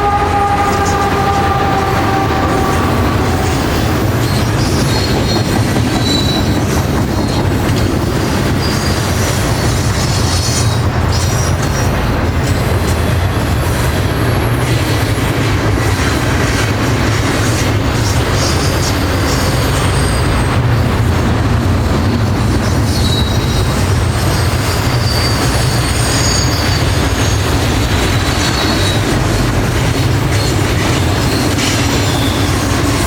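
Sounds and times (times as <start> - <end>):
high wheel squeals: 0.0 - 7.4, 8.4 - 11.9, 17.4 - 20.7, 22.6 - 29.4, 30.3 - 33.0
train wheels rumbling on rail: 0.0 - 33.0.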